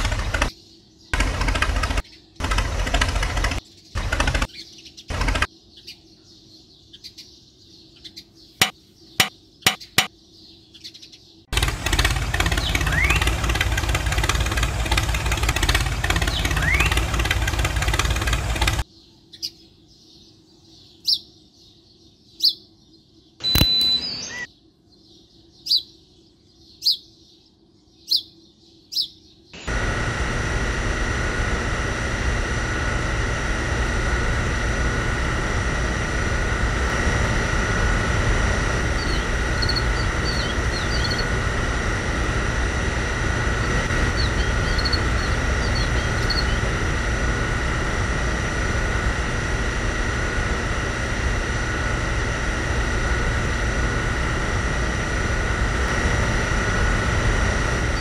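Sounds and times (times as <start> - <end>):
bird chirps: 3.6 - 29.6, 38.9 - 41.4, 43.6 - 46.8
sharp clicks: 8.6 - 10.1
small electric motor whining: 11.5 - 18.8, 29.6 - 58.0.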